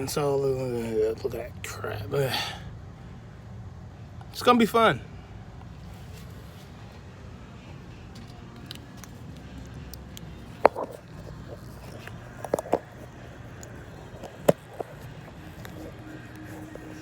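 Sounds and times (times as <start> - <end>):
steady low hum: 0.0 - 17.0
hard objects clicking and knocking: 8.2 - 16.4.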